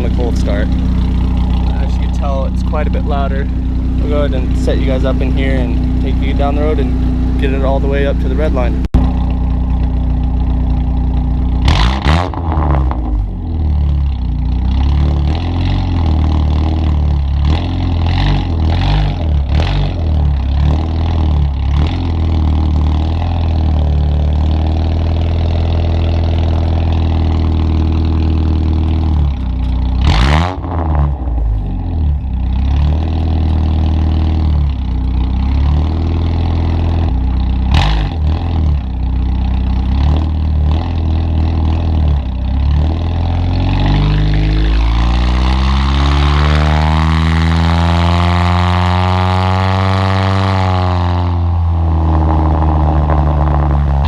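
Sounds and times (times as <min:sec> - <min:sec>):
loud pickup truck exhaust: 0:00.0 - 0:54.0.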